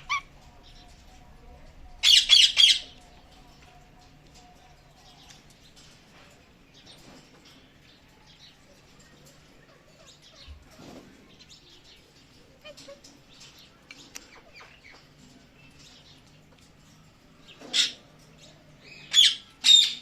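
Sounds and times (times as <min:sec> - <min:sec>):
parrot chirping softly: 0:00.0 - 0:05.7, 0:11.6 - 0:16.3.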